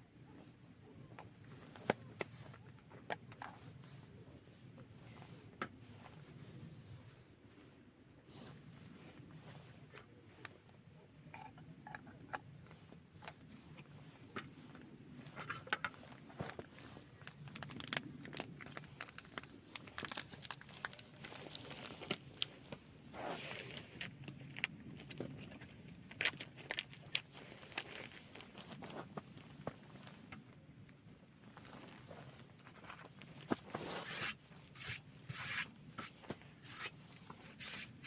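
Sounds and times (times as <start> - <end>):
plastic crinkling and rustling: 12.6 - 30.6, 31.4 - 38.0.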